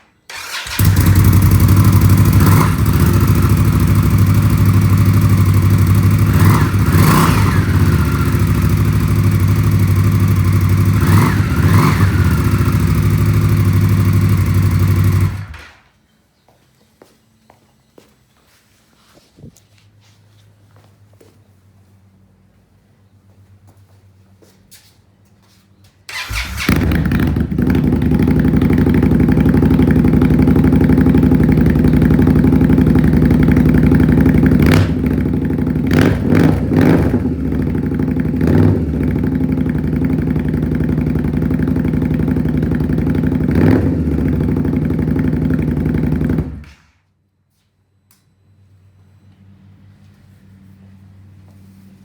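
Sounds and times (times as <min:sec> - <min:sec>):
motorcycle engine idling and revving: 0:00.3 - 0:15.8, 0:26.1 - 0:46.8.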